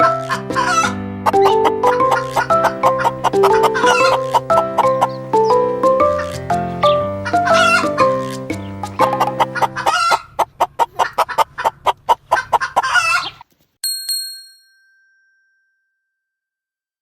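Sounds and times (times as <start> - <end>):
background music: 0.0 - 10.2
hen clucking rapidly: 0.0 - 13.4
bell-like chime: 13.8 - 16.6.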